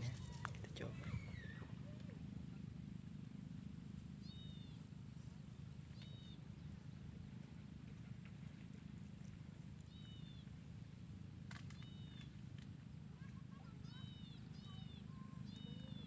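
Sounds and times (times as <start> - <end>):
bird chirps: 5.9 - 7.1, 11.7 - 12.4, 13.6 - 16.0.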